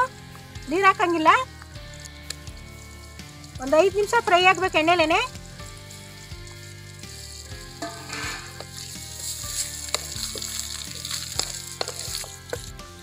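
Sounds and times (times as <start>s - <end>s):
potatoes sizzling in oil: 0.0s - 13.0s
light knocks of stirring: 7.8s - 12.8s.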